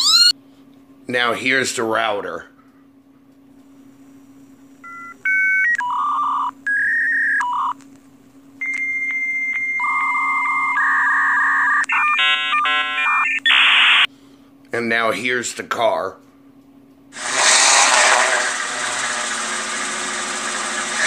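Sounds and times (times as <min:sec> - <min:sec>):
dial-up modem tones: 0:04.8 - 0:07.8, 0:08.6 - 0:14.1.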